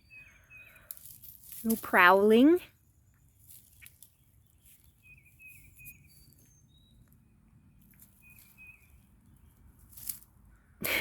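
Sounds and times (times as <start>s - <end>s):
quiet woodland background: 0.0s - 11.0s
songbird whistled calls: 5.0s - 7.0s, 8.2s - 9.0s.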